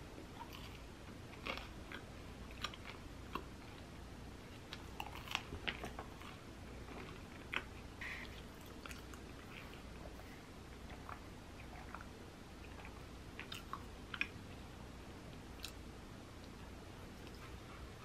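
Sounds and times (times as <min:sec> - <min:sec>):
chewing and biting bagel: 0:00.3 - 0:03.9.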